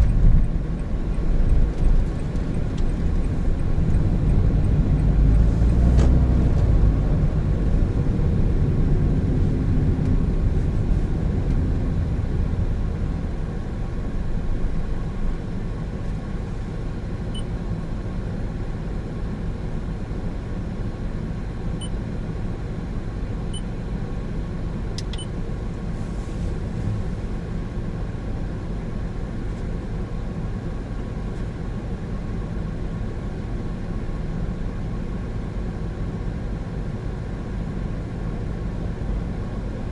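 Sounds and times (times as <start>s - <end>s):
car engine and road noise: 0.0s - 39.9s
click: 25.0s - 25.3s.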